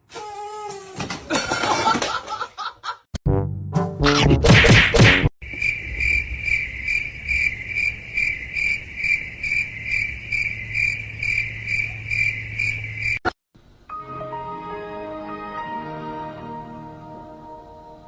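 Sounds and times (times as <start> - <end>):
crickets chirping: 5.4 - 13.3.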